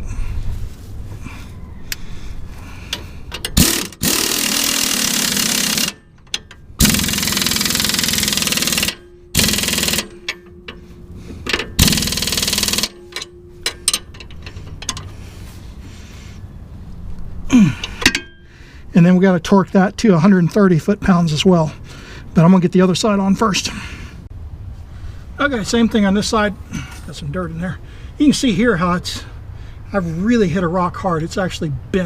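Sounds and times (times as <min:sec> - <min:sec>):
tool handling clicks: 0:02.9 - 0:15.2, 0:17.1 - 0:18.4
impact wrench bursts: 0:02.9 - 0:15.4, 0:17.8 - 0:18.5.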